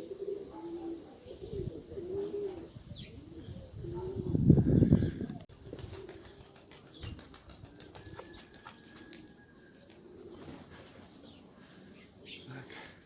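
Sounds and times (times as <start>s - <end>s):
pigeons cooing: 0.0s - 12.6s
wings flapping: 5.6s - 11.3s.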